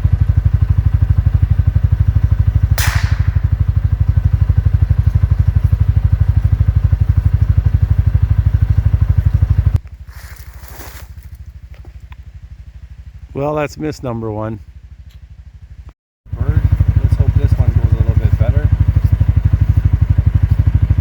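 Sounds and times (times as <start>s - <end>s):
vehicle engine idling: 0.0s - 21.0s
gunshot: 2.8s - 3.9s.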